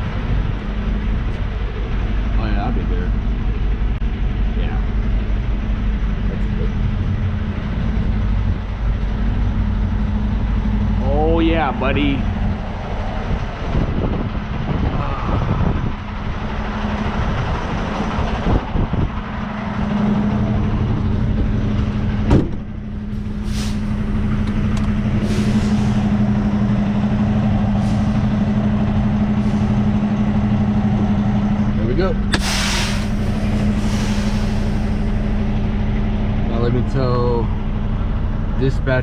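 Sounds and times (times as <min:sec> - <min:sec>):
diesel truck engine running: 0:00.0 - 0:39.0
air brake hisses: 0:23.4 - 0:24.0, 0:25.2 - 0:26.1, 0:27.8 - 0:28.3, 0:32.3 - 0:35.2.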